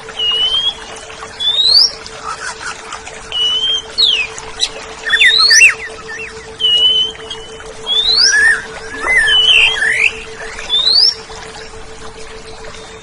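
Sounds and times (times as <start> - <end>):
faint steady hum: 0.0 - 13.0
bird singing whistled phrases: 0.2 - 2.7, 3.3 - 11.2.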